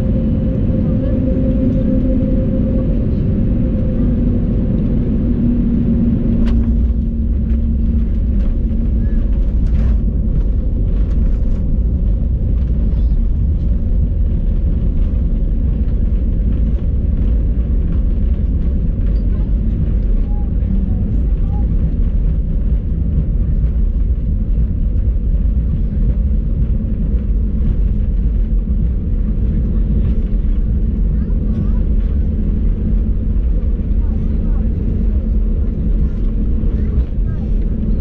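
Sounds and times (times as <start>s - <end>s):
steady tone: 0.0s - 8.2s
aircraft cabin engine rumble: 0.0s - 38.0s.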